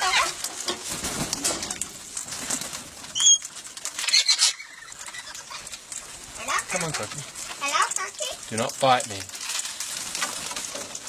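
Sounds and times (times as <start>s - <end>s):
parrots squawking: 0.0s - 0.4s, 3.2s - 5.8s.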